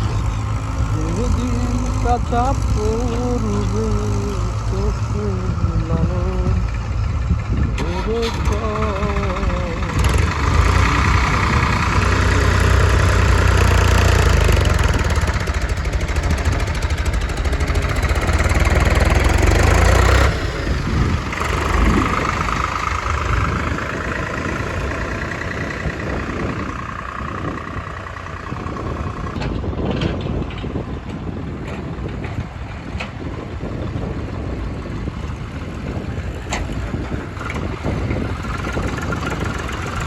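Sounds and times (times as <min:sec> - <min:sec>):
backhoe loader diesel engine: 0:00.0 - 0:40.0
tractor diesel engine: 0:00.0 - 0:40.0.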